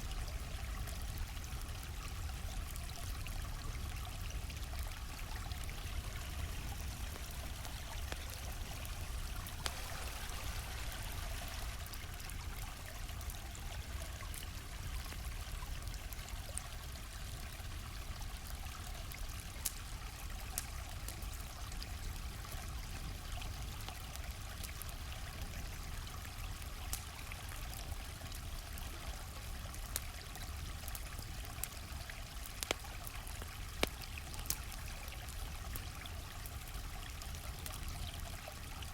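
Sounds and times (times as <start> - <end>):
stream flowing: 0.0 - 22.6
campfire crackling and popping: 0.1 - 38.9.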